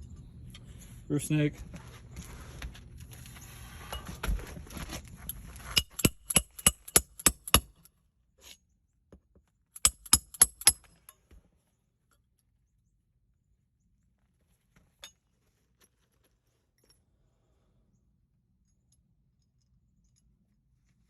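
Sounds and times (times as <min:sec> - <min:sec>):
hammer striking metal tool: 0:05.8 - 0:07.7, 0:09.8 - 0:10.9.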